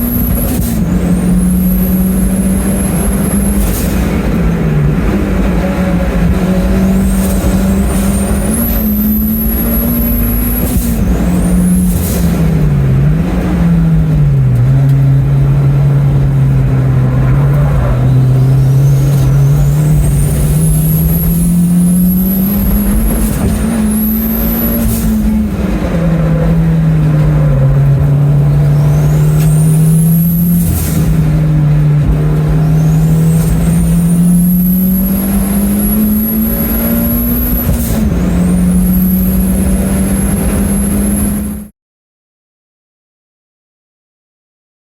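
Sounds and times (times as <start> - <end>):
turbo whistle: 0.0 - 4.2, 6.4 - 12.4, 17.3 - 25.5, 28.6 - 31.7, 32.6 - 41.7
race car engine revving: 0.0 - 41.7.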